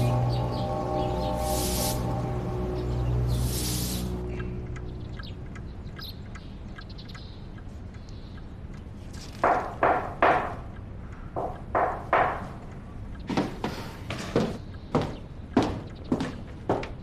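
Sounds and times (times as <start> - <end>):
birds chirping faintly: 0.0 - 17.0
knocks on a door: 9.5 - 10.6, 11.4 - 12.5.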